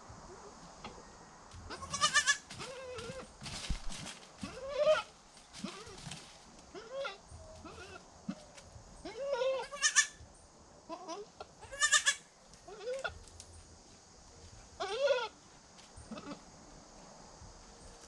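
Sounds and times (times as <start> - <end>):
goats bleating: 1.7 - 3.2, 9.1 - 10.2, 10.9 - 13.1.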